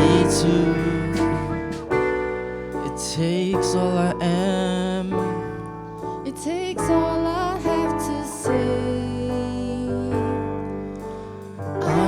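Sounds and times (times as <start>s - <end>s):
sustained chords: 0.0s - 4.6s
person singing wordless notes: 0.0s - 5.7s, 11.8s - 12.0s.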